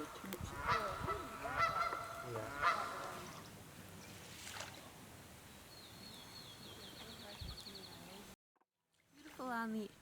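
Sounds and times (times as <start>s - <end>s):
geese honking: 0.0s - 3.3s.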